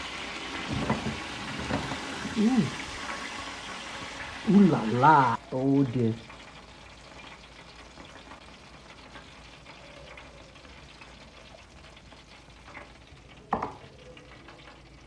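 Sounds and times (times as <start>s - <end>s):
turkey sizzling in a pan: 0.0s - 15.0s.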